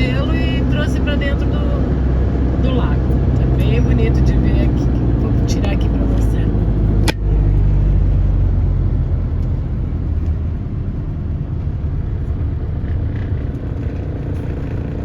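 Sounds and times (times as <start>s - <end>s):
car driving low rumble: 0.0s - 15.0s.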